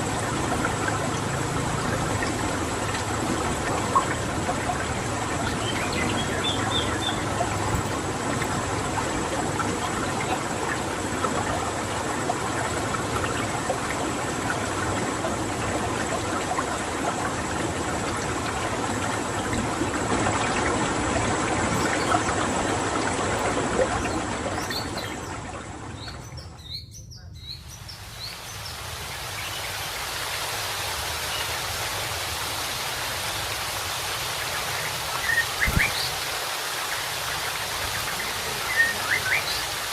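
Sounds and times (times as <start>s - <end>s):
running water: 0.0s - 39.9s
bird calls: 3.3s - 10.5s, 21.5s - 29.8s, 34.7s - 36.4s, 37.0s - 39.9s.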